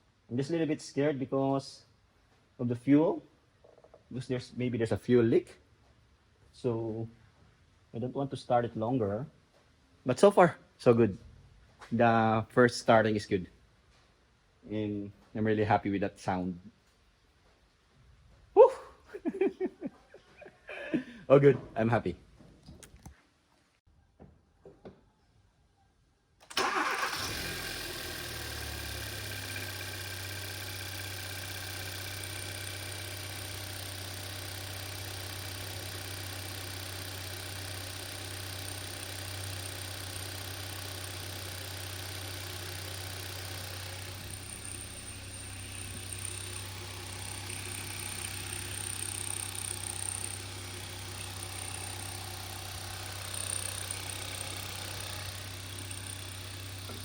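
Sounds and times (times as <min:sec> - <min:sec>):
car engine idling: 0:26.6 - 0:57.0.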